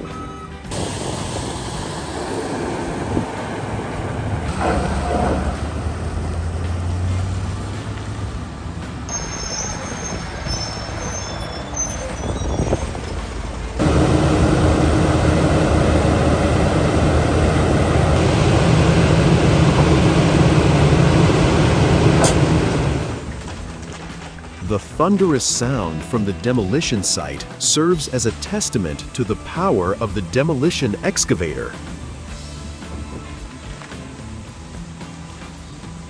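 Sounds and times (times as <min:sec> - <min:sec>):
heavy diesel machinery running: 0:00.0 - 0:36.0
thin high squeal: 0:09.1 - 0:13.0.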